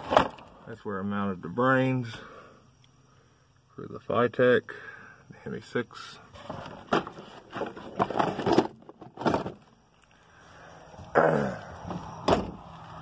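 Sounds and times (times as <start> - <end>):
handling knocks and scrapes: 0.0 - 0.5, 6.3 - 9.7.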